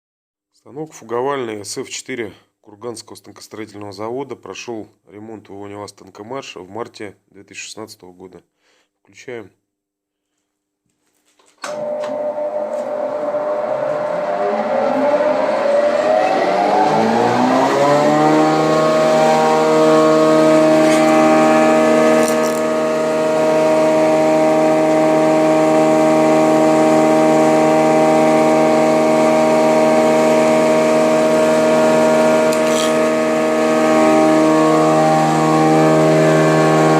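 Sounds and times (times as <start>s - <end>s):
jointer motor humming: 11.7s - 36.9s.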